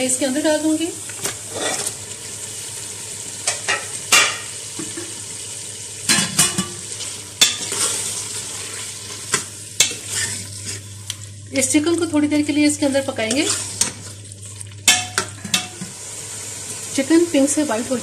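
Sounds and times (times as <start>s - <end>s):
chicken sizzling in hot oil: 0.0s - 18.0s
metal spoon scraping a pot: 9.8s - 10.8s, 13.2s - 14.1s.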